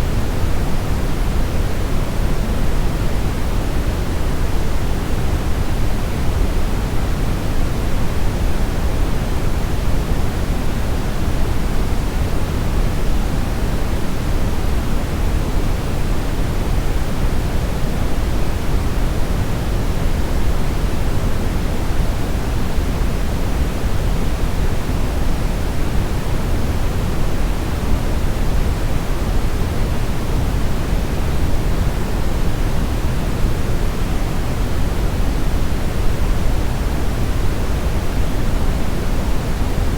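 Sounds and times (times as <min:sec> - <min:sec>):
brown noise hiss: 0:00.0 - 0:39.9.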